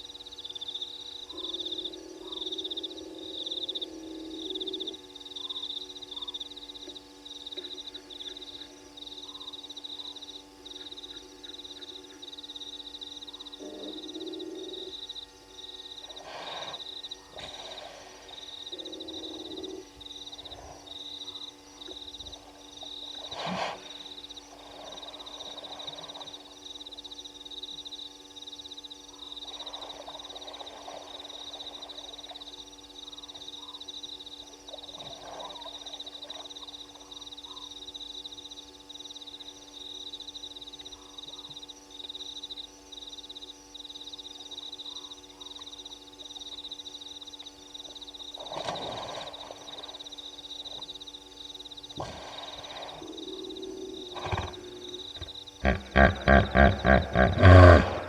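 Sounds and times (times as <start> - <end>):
rough rasping animal calls: 53.3 - 58.0.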